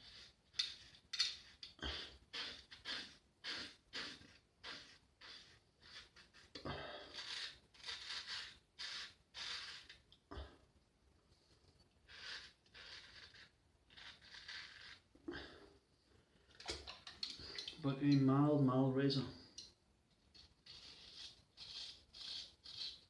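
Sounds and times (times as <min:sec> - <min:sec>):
razor scraping stubble: 0:00.0 - 0:10.0, 0:12.1 - 0:15.1, 0:20.3 - 0:23.0.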